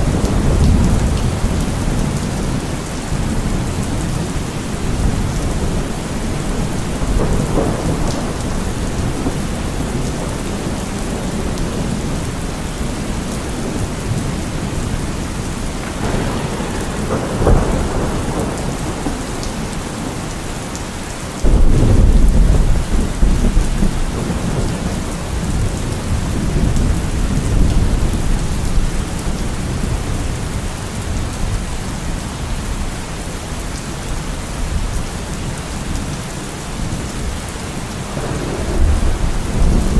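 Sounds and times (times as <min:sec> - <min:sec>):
rolling thunder: 0:00.0 - 0:32.2, 0:36.8 - 0:39.9
steady rain: 0:00.0 - 0:39.9
sharp thunder crack: 0:04.9 - 0:12.0, 0:15.4 - 0:20.7, 0:21.4 - 0:28.1, 0:38.0 - 0:39.9.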